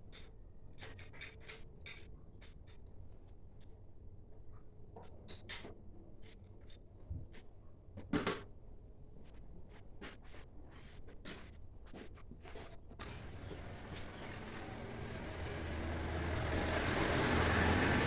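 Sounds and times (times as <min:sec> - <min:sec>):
tools and parts clicking: 0:00.1 - 0:02.9.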